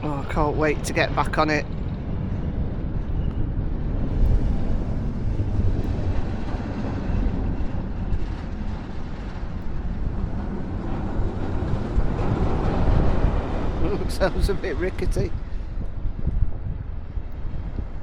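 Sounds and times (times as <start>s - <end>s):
roller coaster train rumbling: 0.0s - 18.0s
wind buffeting microphone: 0.0s - 18.0s.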